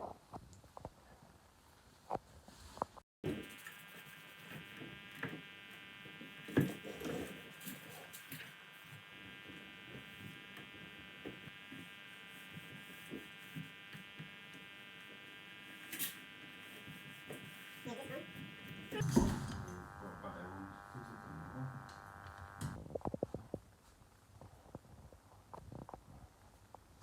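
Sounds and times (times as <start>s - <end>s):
small electric motor whine: 3.2s - 22.8s.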